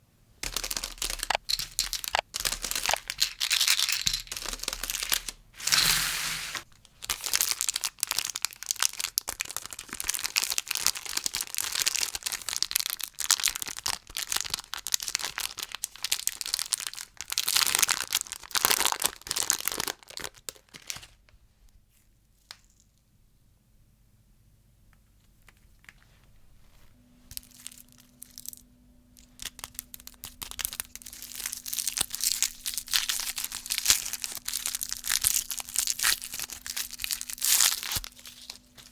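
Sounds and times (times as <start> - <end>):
plastic wrappers crinkling: 0.4 - 21.2, 25.4 - 38.9
low steady hum: 23.4 - 38.9.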